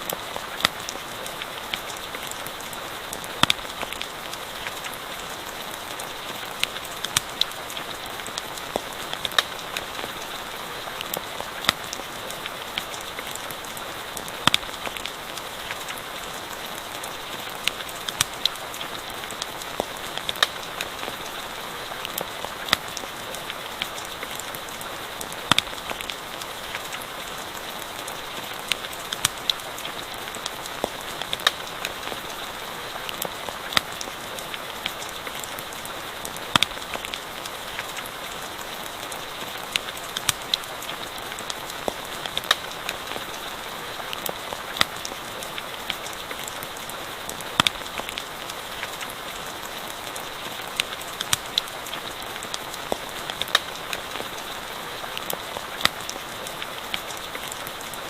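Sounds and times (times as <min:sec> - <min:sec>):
campfire crackling and popping: 0:00.0 - 0:58.0
rain hiss: 0:00.0 - 0:58.0.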